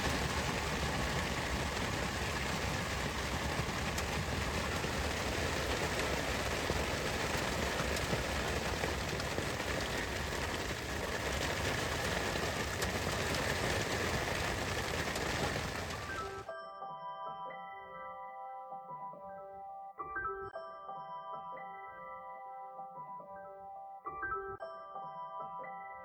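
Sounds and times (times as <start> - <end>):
steady rain falling: 0.0 - 16.5.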